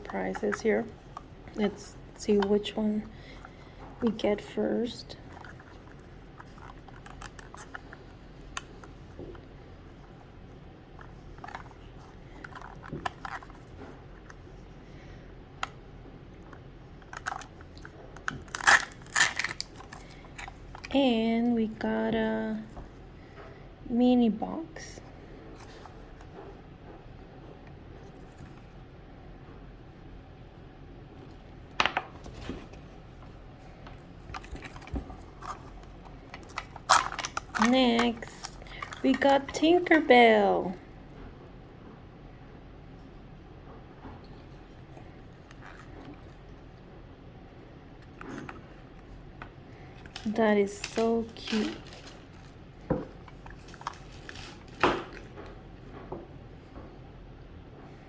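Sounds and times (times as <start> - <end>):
plastic packaging crinkling: 5.2 - 9.3, 17.0 - 21.0, 33.8 - 40.0, 50.0 - 55.3.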